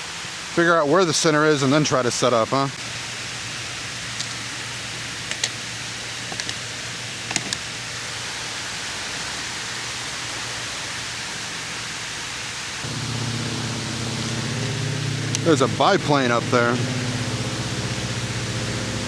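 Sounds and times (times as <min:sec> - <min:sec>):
fountain water rushing: 0:00.0 - 0:19.0
biplane engine drone overhead: 0:12.8 - 0:19.0.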